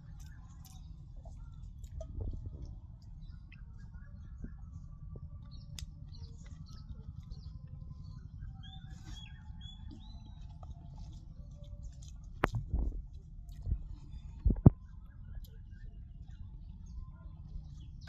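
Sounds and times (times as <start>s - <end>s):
birds chirping: 0.0s - 11.8s
steady low rumble: 0.0s - 18.0s.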